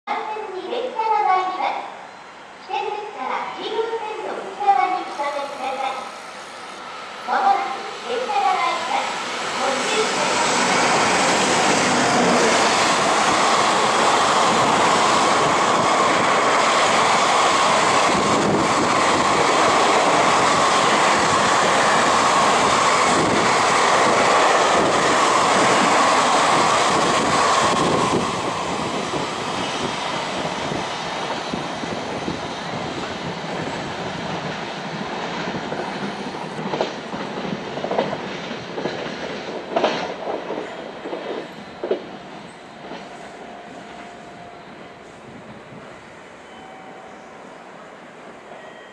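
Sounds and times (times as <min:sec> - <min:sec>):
train wheels clattering over rails: 0:09.1 - 0:43.3.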